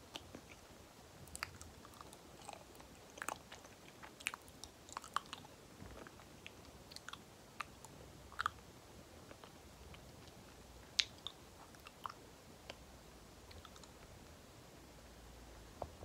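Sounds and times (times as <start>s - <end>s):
banana being chewed: 0.0s - 12.8s
wet mouth clicks and smacks: 10.9s - 12.8s.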